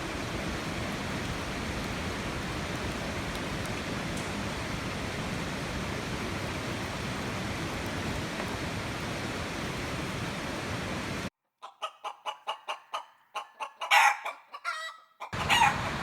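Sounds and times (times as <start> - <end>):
steady rushing noise: 0.0 - 11.3
rooster clucking: 11.6 - 16.0
rooster crowing: 13.8 - 16.0.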